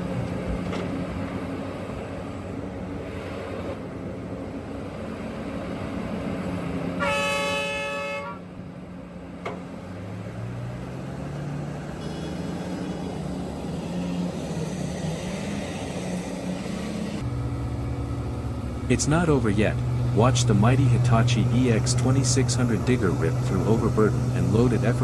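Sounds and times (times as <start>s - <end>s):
diesel engines running: 0.0s - 25.0s
horn blast: 7.0s - 8.4s, 17.2s - 25.0s.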